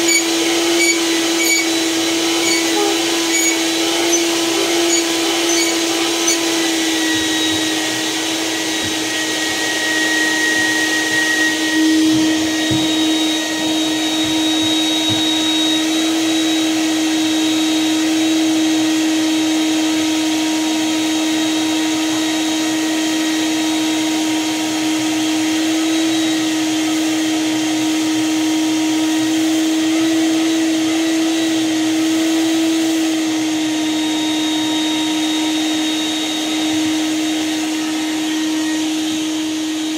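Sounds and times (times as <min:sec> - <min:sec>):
shop vac sucking ashes: 0:00.0 - 0:17.8.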